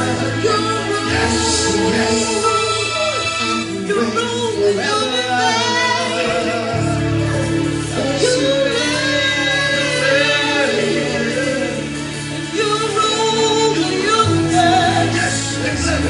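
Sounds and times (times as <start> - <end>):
band playing: 0.0 - 16.0
singers leading a song: 0.0 - 16.0.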